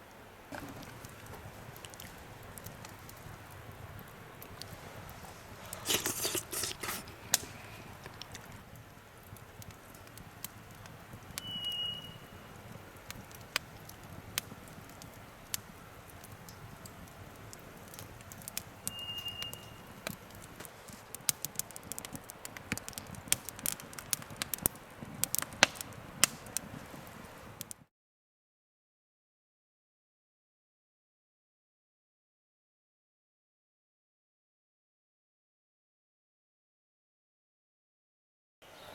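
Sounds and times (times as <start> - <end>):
campfire crackling and popping: 0.0 - 27.8.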